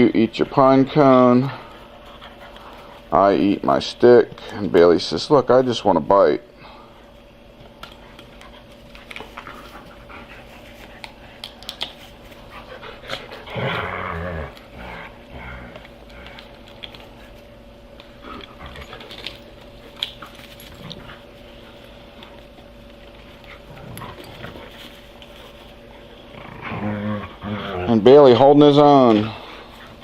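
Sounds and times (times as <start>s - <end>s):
dogs panting and scuffling: 0.3s - 5.5s, 6.8s - 30.0s
loud dog vocalisation: 12.5s - 16.4s.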